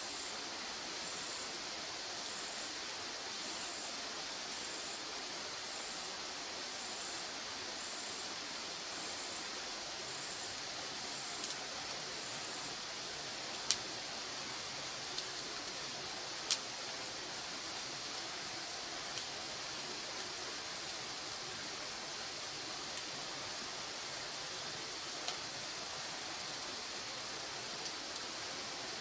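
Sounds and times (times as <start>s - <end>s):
wood fire hissing: 1.0s - 29.0s
fire crackles: 10.1s - 28.3s.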